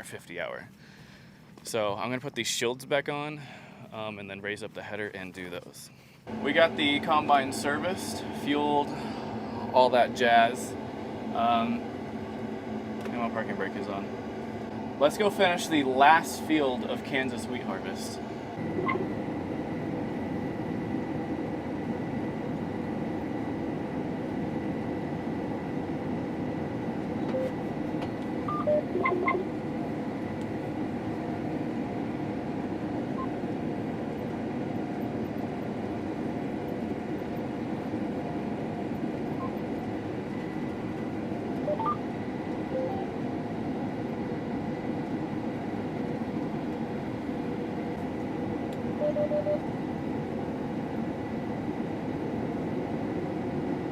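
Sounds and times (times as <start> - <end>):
combine harvester running: 6.3 - 53.8
short electronic beeps: 28.5 - 29.4, 41.6 - 42.0, 42.8 - 43.1, 49.0 - 49.6.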